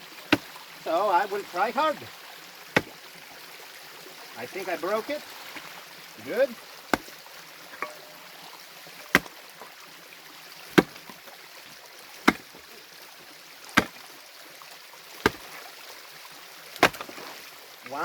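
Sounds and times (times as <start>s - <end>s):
stream rushing: 0.0s - 18.0s
pickaxe striking rock: 2.8s - 3.0s, 6.9s - 7.2s, 7.8s - 8.2s, 9.1s - 9.4s, 10.7s - 11.2s, 12.3s - 12.5s, 13.8s - 14.0s, 15.2s - 15.5s, 16.8s - 17.3s.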